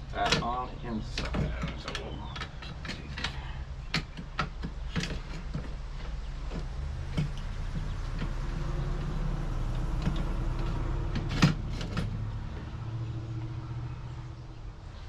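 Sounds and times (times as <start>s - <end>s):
plastic parts clicking and knocking: 0.0s - 9.1s, 9.7s - 12.8s.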